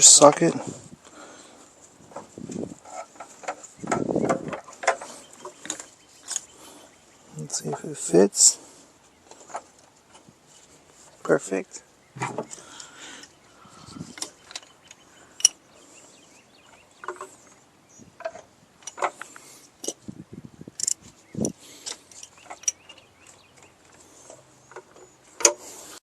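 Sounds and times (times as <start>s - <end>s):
ratchet wrench clicking: 20.8s - 21.6s.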